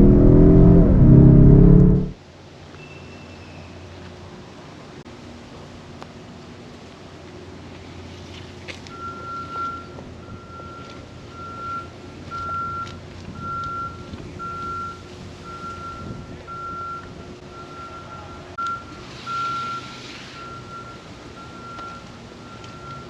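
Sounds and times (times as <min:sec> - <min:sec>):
electronic beeper pulsing: 0:00.0 - 0:02.2.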